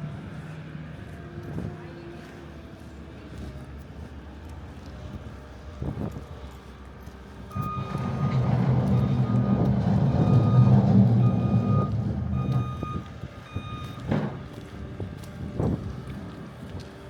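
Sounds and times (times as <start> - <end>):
low engine rumble: 0.0 - 17.0
truck reverse alarm beeping: 7.5 - 14.5.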